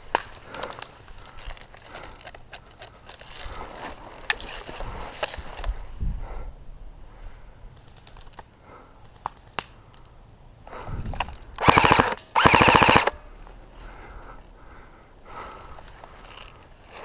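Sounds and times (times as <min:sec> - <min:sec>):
airsoft gun full-auto bursts: 0:11.6 - 0:13.2.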